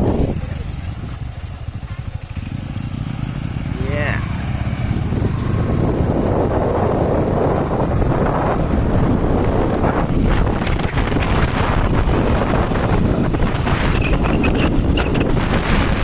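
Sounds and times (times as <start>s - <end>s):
motorcycle noise: 0.0s - 16.0s
wind buffeting microphone: 0.0s - 16.0s.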